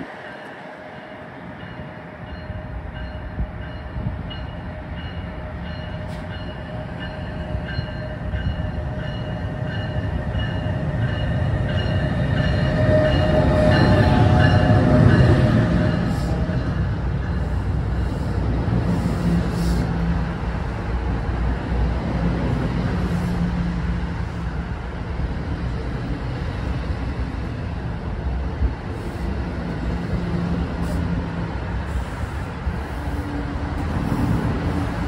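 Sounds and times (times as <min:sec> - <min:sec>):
electric train rumble and hum: 0:00.0 - 0:35.0.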